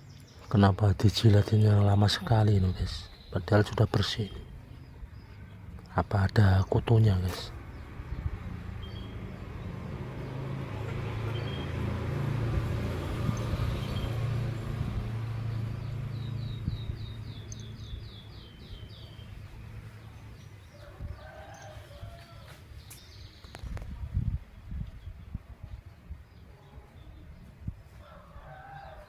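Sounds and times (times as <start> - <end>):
low rumble of passing vehicle: 1.0 - 29.0
small bird chirping: 6.6 - 21.4.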